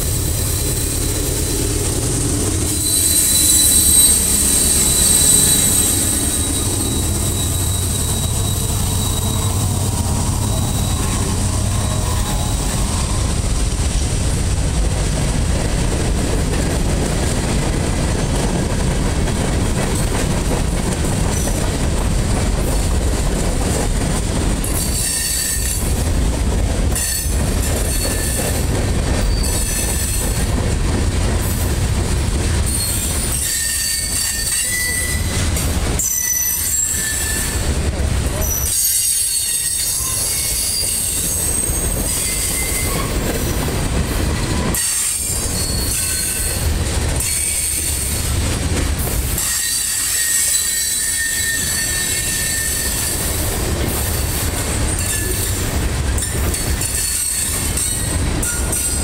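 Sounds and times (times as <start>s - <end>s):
train wheels rumbling on rails: 0.0s - 59.0s
high-pitched wheel squeals: 2.7s - 13.4s, 32.7s - 35.4s, 36.0s - 37.7s, 38.4s - 43.3s, 44.6s - 46.6s, 49.4s - 53.2s.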